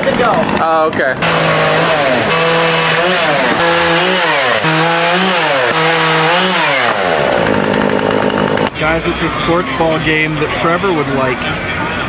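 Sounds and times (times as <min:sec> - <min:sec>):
chainsaw engine revving: 0:00.0 - 0:08.7.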